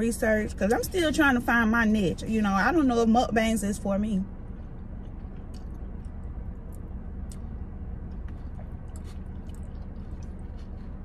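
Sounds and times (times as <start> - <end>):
car cabin hum: 0.0 - 11.0
woman chewing food: 4.4 - 11.0.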